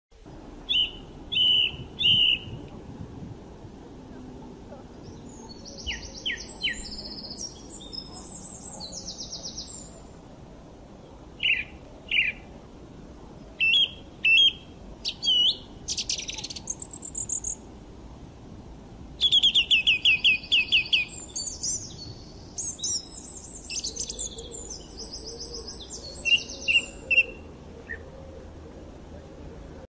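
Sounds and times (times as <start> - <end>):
faint steady background noise: 0.2 - 29.9
birds chirping and trilling: 0.6 - 2.6, 4.6 - 10.2, 11.0 - 12.5, 13.6 - 17.6, 19.2 - 28.3.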